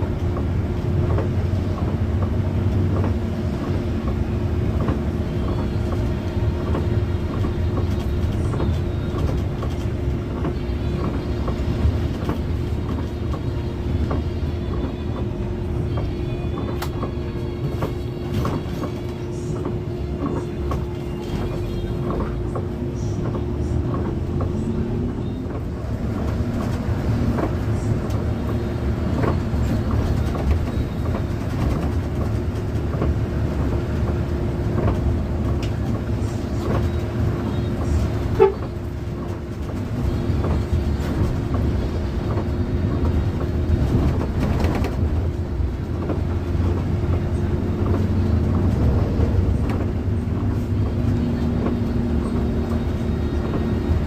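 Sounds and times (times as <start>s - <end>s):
bus engine and road noise: 0.0s - 54.0s.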